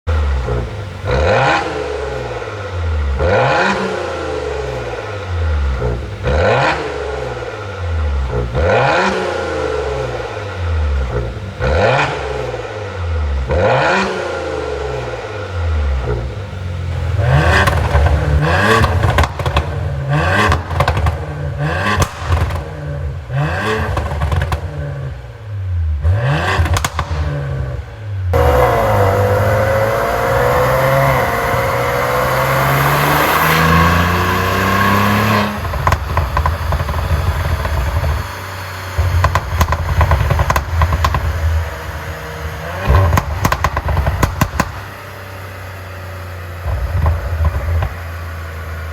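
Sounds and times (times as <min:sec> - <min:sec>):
car engine revving: 0:00.0 - 0:48.9
exhaust pops and crackles: 0:15.9 - 0:25.0, 0:26.5 - 0:29.0, 0:29.6 - 0:48.9.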